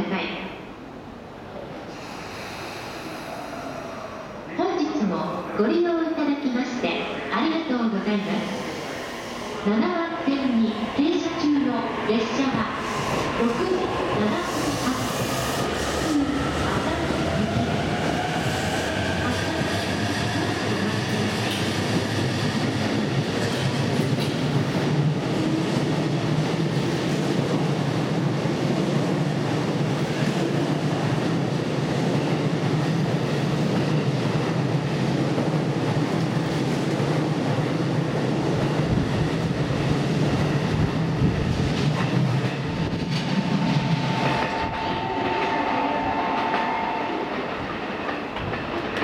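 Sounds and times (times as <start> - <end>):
electric train rolling past: 6.6 - 49.0
steady high tone: 43.1 - 48.0.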